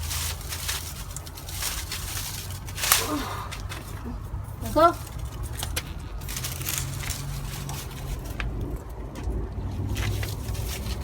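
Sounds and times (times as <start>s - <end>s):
plant stems snapping: 0.0s - 4.2s, 5.0s - 8.8s
leaves and vines rustling: 0.0s - 11.0s.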